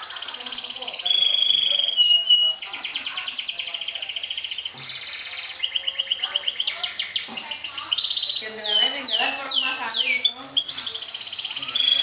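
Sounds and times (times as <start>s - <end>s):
canary singing fast trills: 0.0s - 12.0s.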